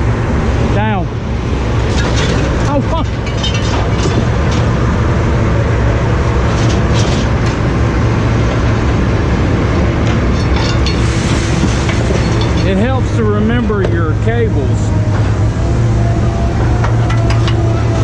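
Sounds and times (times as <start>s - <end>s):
vehicle engine droning: 0.0s - 18.0s
short clanks or rattles: 1.8s - 4.9s, 6.5s - 7.6s, 10.0s - 13.0s.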